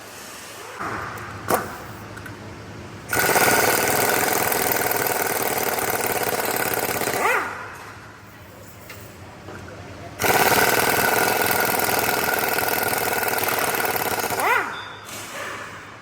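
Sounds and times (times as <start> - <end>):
impact wrench hammering: 3.1 - 8.0, 10.2 - 14.8.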